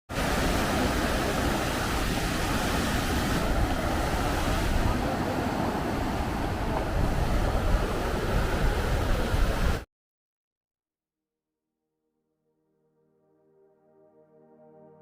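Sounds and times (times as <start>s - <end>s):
sea surf: 0.1s - 9.8s
wind buffeting microphone: 0.2s - 9.8s.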